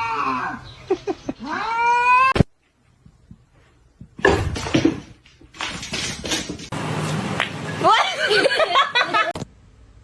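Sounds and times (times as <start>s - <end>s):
cat yowling meow: 1.4s - 2.4s.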